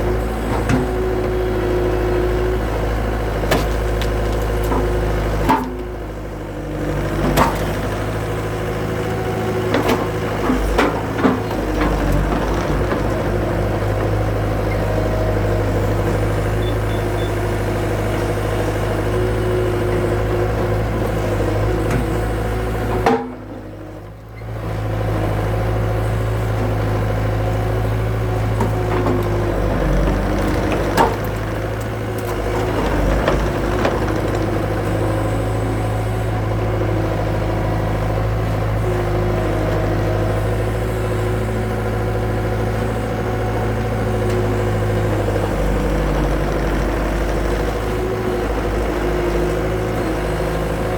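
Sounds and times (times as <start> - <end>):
skid steer engine running: 0.0 - 50.9
wood splitting knocks and cracks: 3.4 - 5.8.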